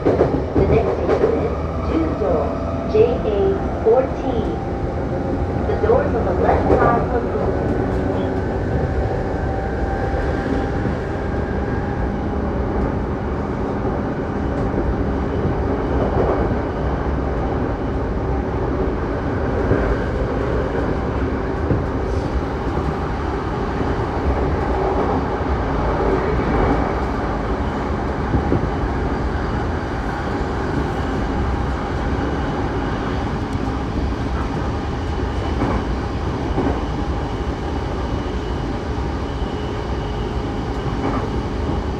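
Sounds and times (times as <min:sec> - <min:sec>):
rail clacks: 0:00.0 - 0:04.6, 0:29.6 - 0:37.0.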